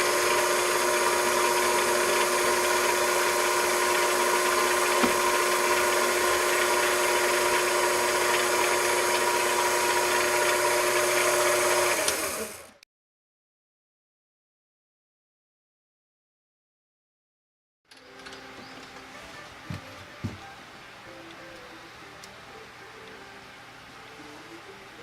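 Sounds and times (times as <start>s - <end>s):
electric motor whining: 0.0s - 12.8s.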